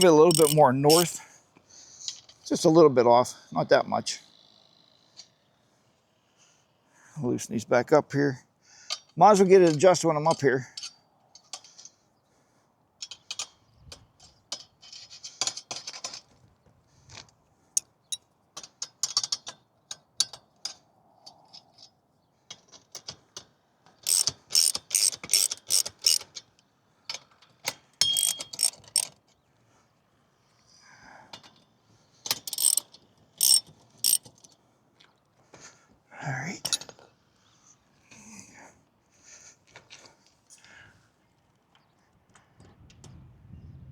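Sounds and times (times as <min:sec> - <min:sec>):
ratchet wrench clicking: 0:00.0 - 0:01.2, 0:24.0 - 0:26.3, 0:28.0 - 0:29.1, 0:32.3 - 0:34.4.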